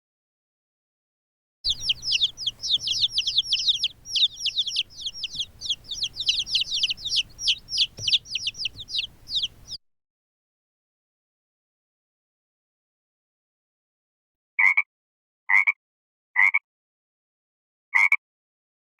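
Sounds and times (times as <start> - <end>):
birds chirping: 1.7 - 9.8.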